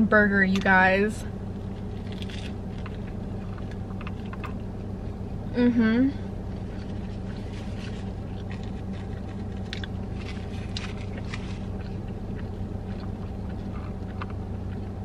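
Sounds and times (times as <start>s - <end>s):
air conditioning hum: 0.0s - 15.0s
car engine idling: 0.0s - 15.0s
chewing and biting food: 1.5s - 5.4s, 6.4s - 15.0s.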